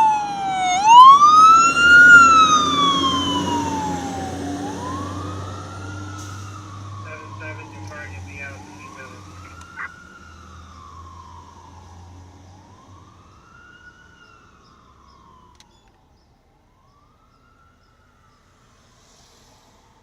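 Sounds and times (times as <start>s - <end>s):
truck engine rumble: 0.0s - 14.1s
fire truck siren wailing: 0.0s - 19.0s.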